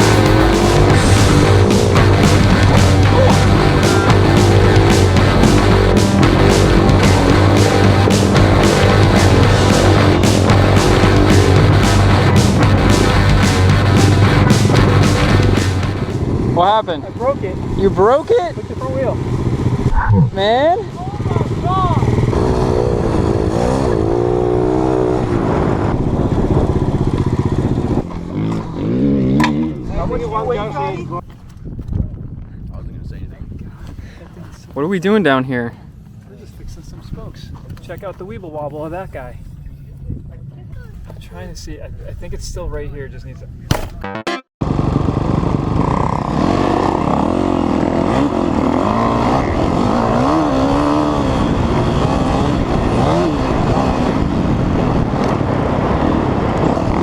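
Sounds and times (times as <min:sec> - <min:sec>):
dirt bike engine idling: 0:00.0 - 0:22.3.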